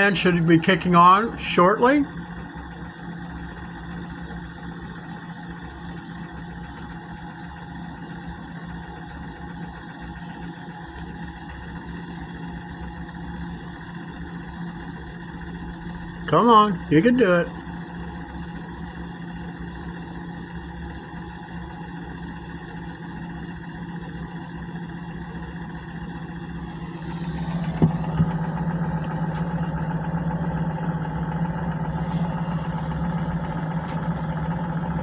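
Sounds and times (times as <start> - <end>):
gas furnace burner running: 0.0 - 35.0.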